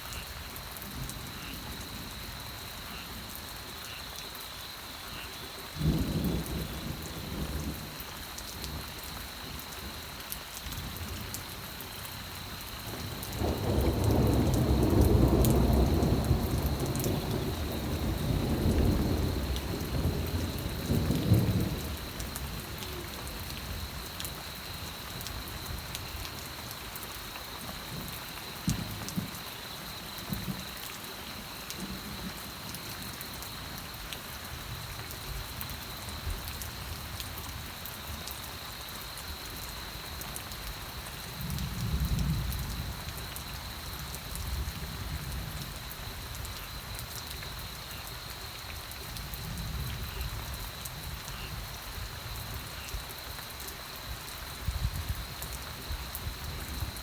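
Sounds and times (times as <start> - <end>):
steady rain: 0.0 - 57.0
thunder rolling: 12.9 - 23.8.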